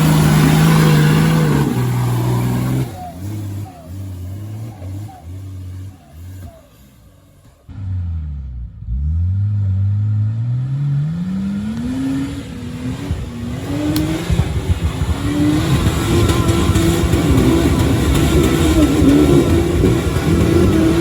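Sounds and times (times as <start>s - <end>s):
engine accelerating under load: 0.0s - 21.0s.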